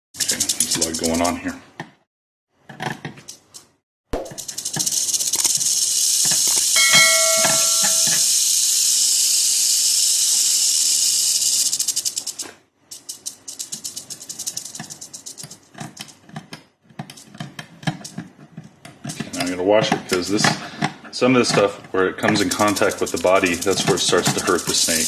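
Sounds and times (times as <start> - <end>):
rattlesnake rattling: 0.2 - 1.3, 4.3 - 16.3, 22.2 - 25.0
steady multi-pitch tone: 6.8 - 8.3.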